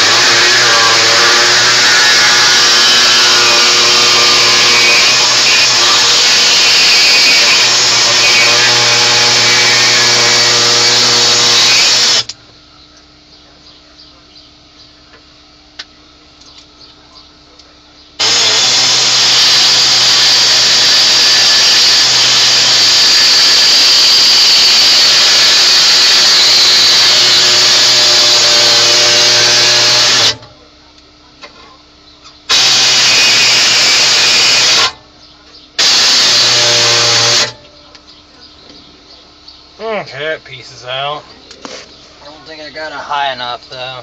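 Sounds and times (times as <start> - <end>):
pneumatic cutter cutting plastic: 0.0 - 12.4, 18.2 - 30.5, 32.5 - 35.0, 35.8 - 37.6.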